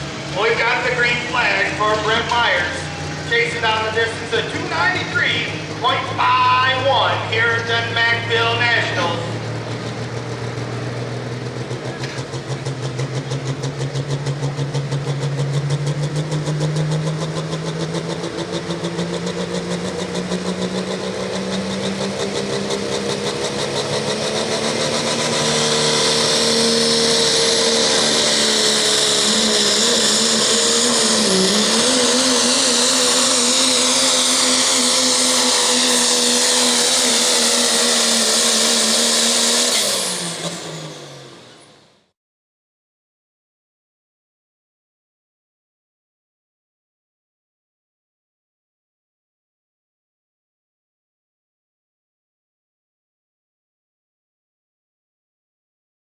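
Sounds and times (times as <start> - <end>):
diesel truck engine under load: 0.0 - 42.1.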